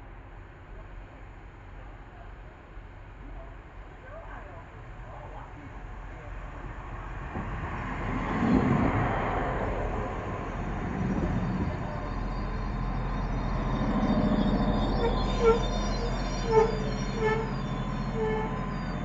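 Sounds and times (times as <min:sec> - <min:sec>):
train rumbling on rails: 0:00.0 - 0:19.0
low engine drone: 0:08.1 - 0:19.0.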